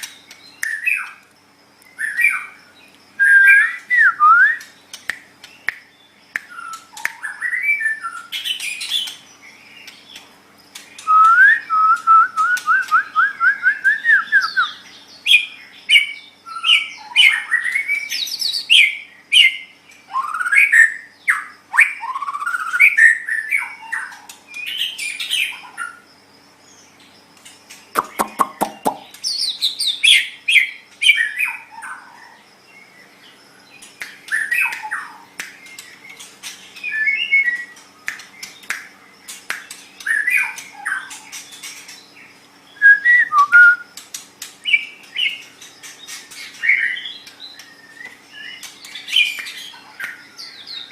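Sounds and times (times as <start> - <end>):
faint steady hum: 0.0 - 50.9
bird singing whistled phrases: 3.2 - 4.8, 11.0 - 25.6, 36.8 - 37.8, 42.7 - 43.9
bird rapid clicks: 4.6 - 7.3, 27.4 - 29.4, 33.8 - 36.7, 37.6 - 41.9, 47.2 - 50.2.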